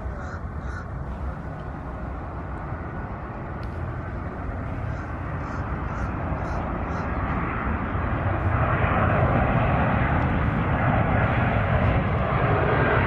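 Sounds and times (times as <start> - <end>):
jet airliner engines roaring: 0.0 - 13.0.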